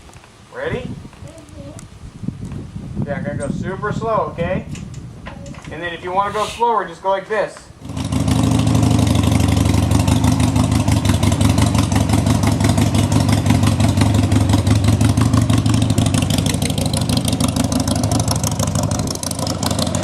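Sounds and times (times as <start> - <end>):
motorcycle engine running: 7.8 - 20.0.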